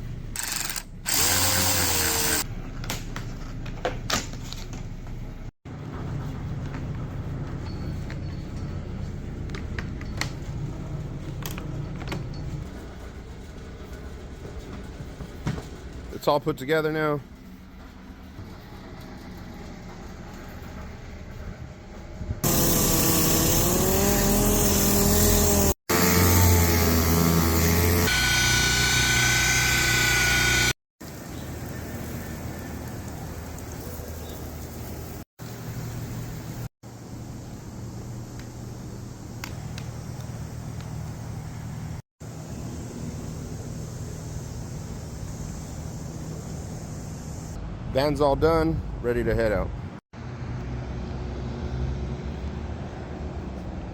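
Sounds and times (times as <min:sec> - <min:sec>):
engine rumble: 0:31.0 - 0:53.9
vehicle engine humming: 0:49.8 - 0:53.9.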